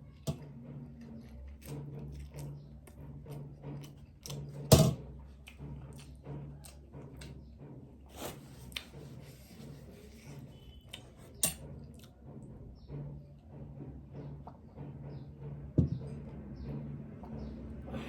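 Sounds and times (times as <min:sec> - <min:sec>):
person chewing crab: 0:05.3 - 0:07.4.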